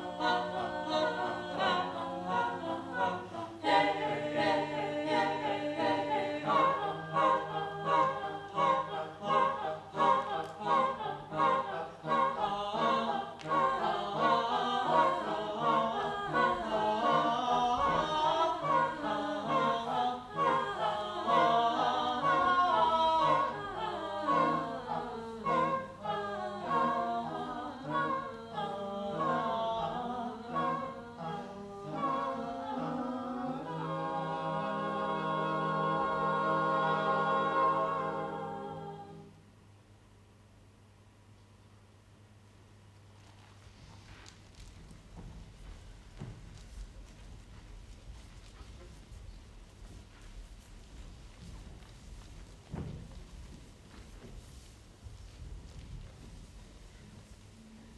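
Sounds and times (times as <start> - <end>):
choir singing unaccompanied: 0.0 - 39.4.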